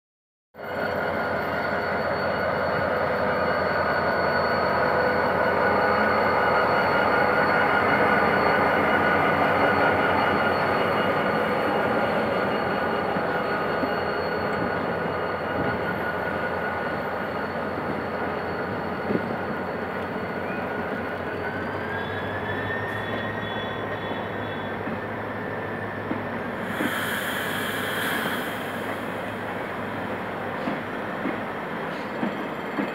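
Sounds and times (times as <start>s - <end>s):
high wheel squeal: 0.6s - 32.7s
train coaches rumbling: 0.9s - 32.9s
diesel locomotive engine running: 15.6s - 32.9s.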